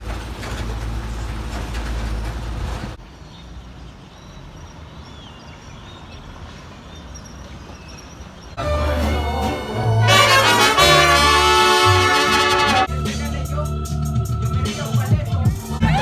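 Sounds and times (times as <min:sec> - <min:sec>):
low vehicle rumble: 0:00.0 - 0:05.0.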